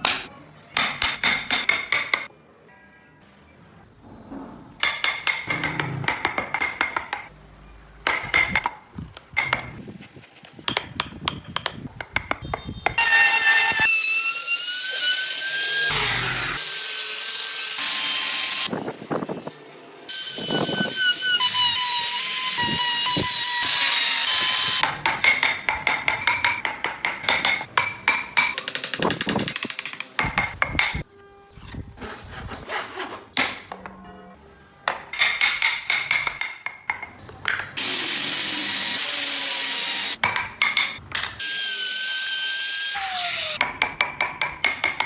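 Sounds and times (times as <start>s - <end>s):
power tool cutting wood: 13.0s - 18.7s, 20.1s - 24.8s, 37.8s - 40.2s, 41.4s - 43.6s.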